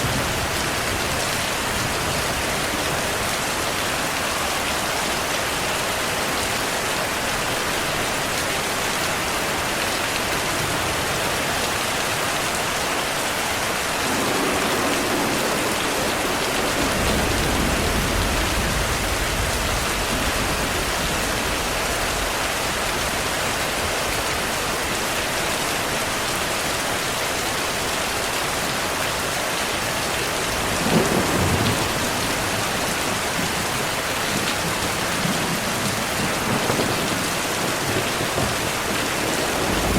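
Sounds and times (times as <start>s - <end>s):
heavy rain falling: 0.0s - 39.9s
rolling thunder: 13.9s - 23.2s, 30.5s - 39.9s.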